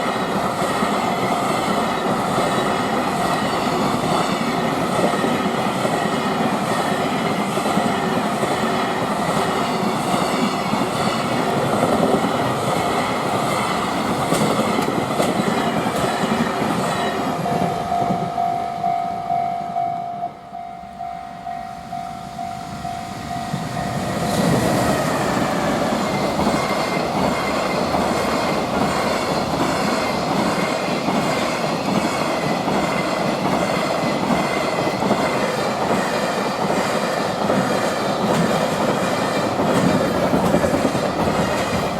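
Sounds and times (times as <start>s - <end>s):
freight train wheels clattering: 0.0s - 18.4s, 23.5s - 41.9s
steady tone: 17.4s - 26.2s.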